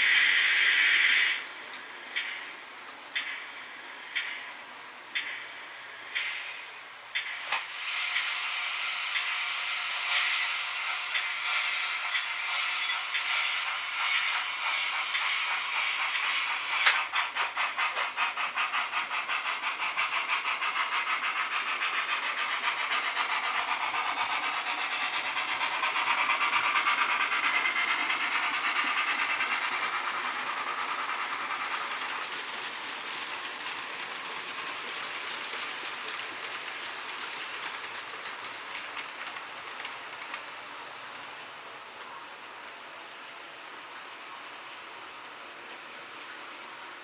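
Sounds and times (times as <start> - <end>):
model train running: 0.0 - 47.0.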